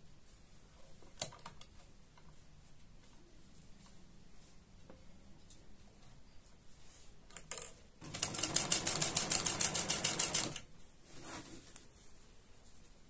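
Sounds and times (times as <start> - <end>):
sewing machine stitching: 8.0 - 10.6.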